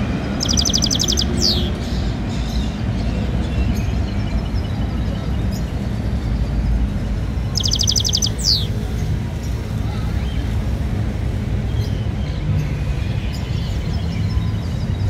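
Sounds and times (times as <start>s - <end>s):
songbird trill: 0.0s - 10.5s
falling bird whistle: 0.4s - 1.7s, 7.6s - 8.7s.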